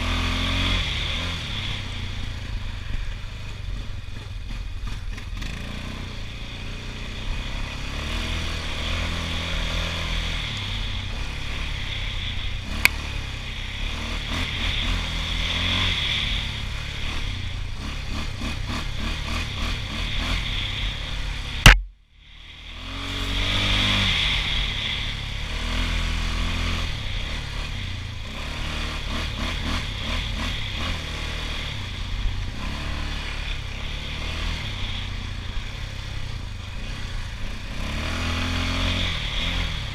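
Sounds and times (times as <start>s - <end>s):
atv engine running: 0.0s - 39.9s
sharp knock: 21.6s - 21.9s.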